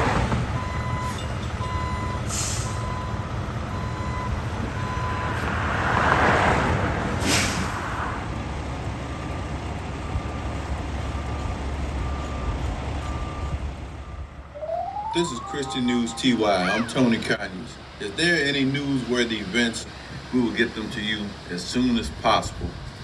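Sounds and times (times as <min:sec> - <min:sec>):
backup alarm beeping: 0:14.5 - 0:17.4
truck engine running: 0:16.2 - 0:23.0.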